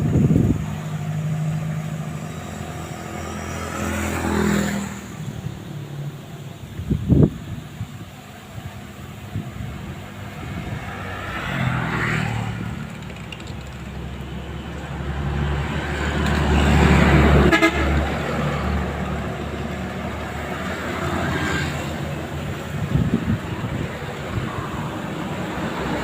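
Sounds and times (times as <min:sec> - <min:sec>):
vehicles passing: 0:00.0 - 0:26.0
car horn: 0:17.3 - 0:18.2.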